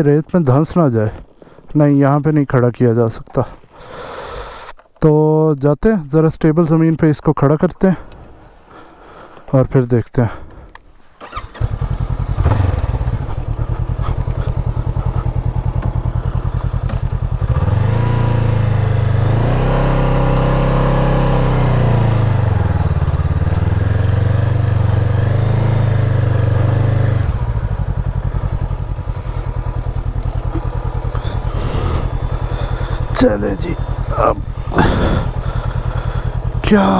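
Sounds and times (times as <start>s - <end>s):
motorcycle engine idling and revving: 10.6s - 36.9s.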